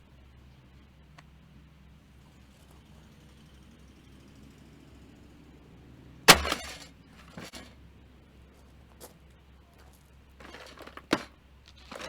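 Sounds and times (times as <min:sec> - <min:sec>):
breaking pieces clattering: 0:06.3 - 0:07.7
sledgehammer smashing coffee maker: 0:06.3 - 0:07.7.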